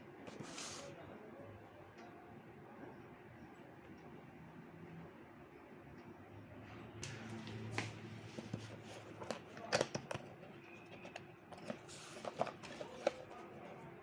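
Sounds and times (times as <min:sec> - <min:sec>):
packaging rustling and clicking: 0:08.3 - 0:13.6.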